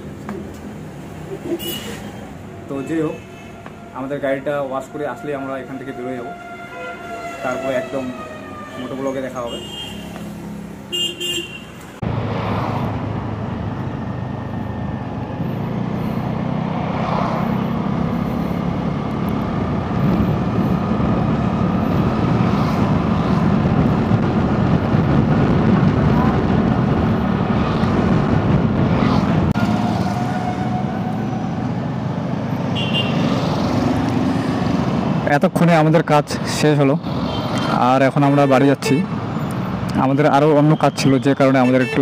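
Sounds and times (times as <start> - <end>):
road traffic rumble: 0.0 - 42.0
motor vehicle running: 11.9 - 35.3.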